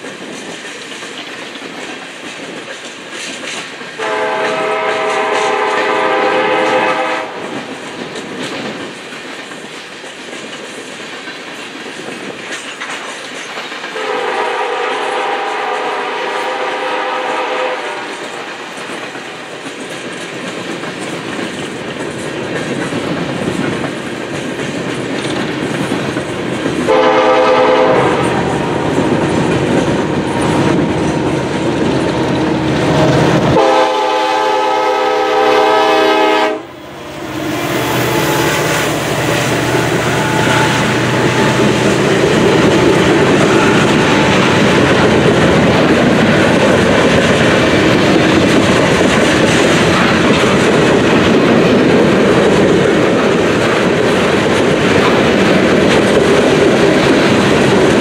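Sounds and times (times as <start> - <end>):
freight train wheels rumbling: 0.0 - 58.0
diesel locomotive horn: 4.0 - 7.5, 14.0 - 18.7, 26.9 - 44.8.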